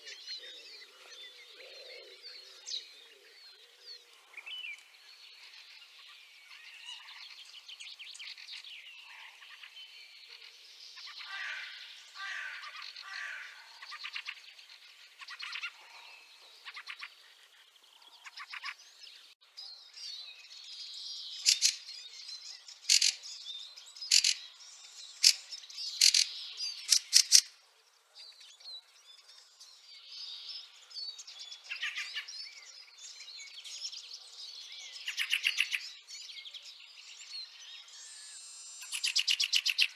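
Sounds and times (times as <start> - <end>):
birds chattering calls: 0.0 - 19.3, 20.9 - 27.6, 34.8 - 39.9
loud harsh bird calls: 11.0 - 14.4, 21.4 - 21.9, 22.8 - 23.2, 24.0 - 27.6.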